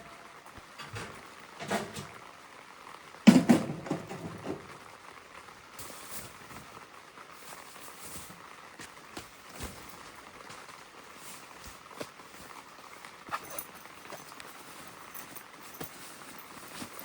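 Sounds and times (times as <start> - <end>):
rain on a tent: 0.0 - 17.0
loud clunk with clatter: 0.6 - 2.2, 3.3 - 4.8.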